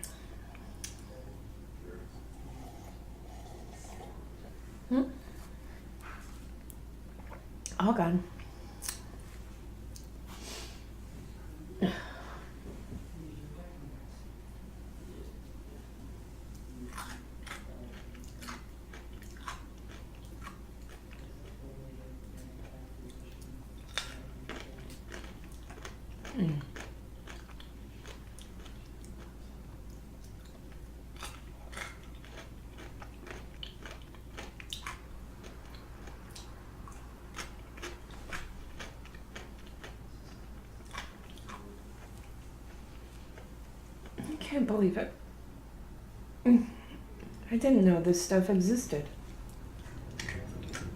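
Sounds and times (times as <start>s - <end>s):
chewing: 8.4s - 10.2s, 16.5s - 44.3s, 49.2s - 50.9s.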